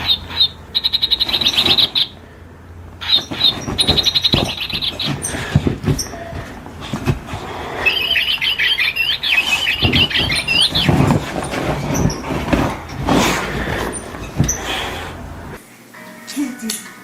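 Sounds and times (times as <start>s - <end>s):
small animal chirping squeaks: 0.0s - 2.2s, 7.9s - 11.0s
rustling: 2.8s - 15.6s.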